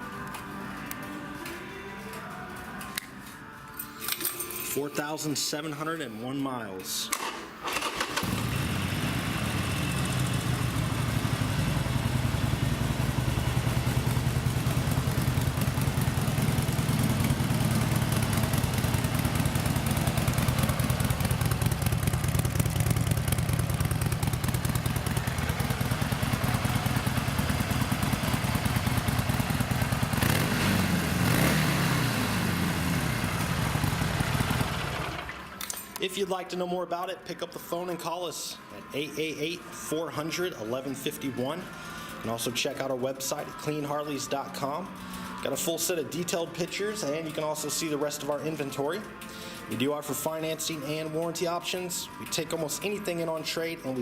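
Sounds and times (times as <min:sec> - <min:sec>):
motorcycle engine idling: 0:08.2 - 0:35.4.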